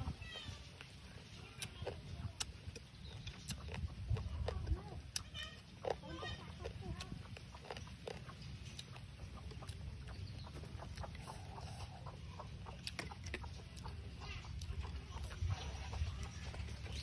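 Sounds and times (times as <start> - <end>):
chickens clucking: 0.0 - 17.0
chewing and mouth clicks: 0.2 - 17.0.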